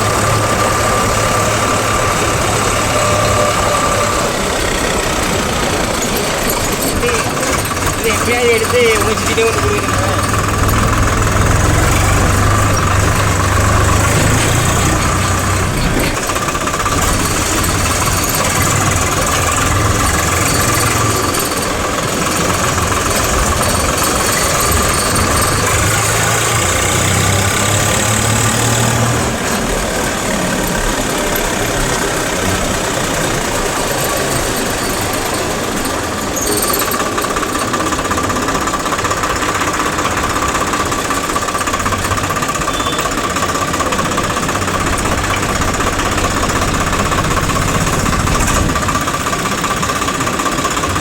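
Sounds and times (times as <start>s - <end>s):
heavy machinery diesel engine: 0.0s - 51.0s.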